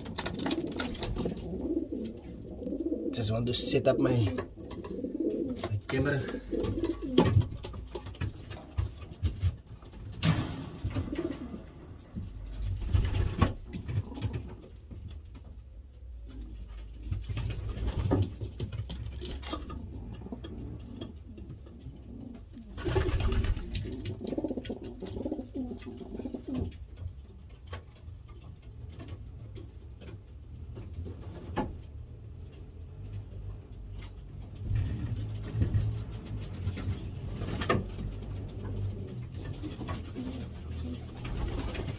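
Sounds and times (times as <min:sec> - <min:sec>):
pigeons cooing: 0:00.0 - 0:08.0, 0:19.2 - 0:26.9, 0:37.6 - 0:41.9.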